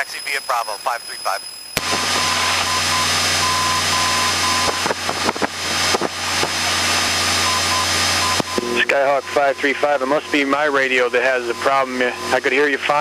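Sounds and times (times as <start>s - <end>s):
radio hum and hiss: 0.0s - 2.8s, 8.4s - 13.0s
whistle-like radio tone: 0.0s - 4.8s.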